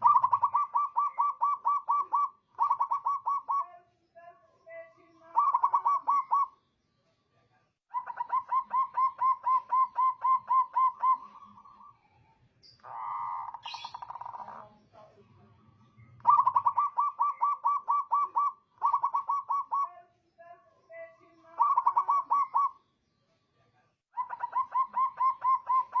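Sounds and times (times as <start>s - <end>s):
dove cooing: 0.0s - 3.7s, 5.3s - 6.6s, 7.9s - 12.0s, 12.8s - 14.7s, 16.2s - 20.0s, 21.5s - 22.8s, 24.2s - 26.0s.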